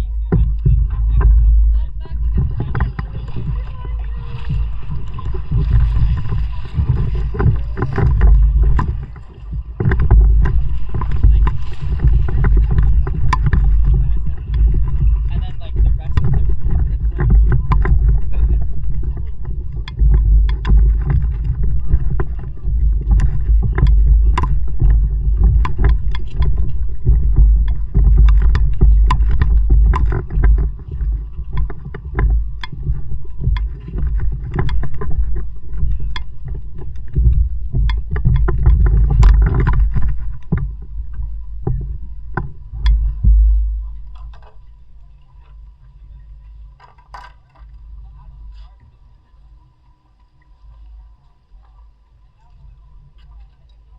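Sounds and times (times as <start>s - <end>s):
paddle splashing water: 0.0s - 53.9s
wind rumble on microphone: 0.0s - 53.9s.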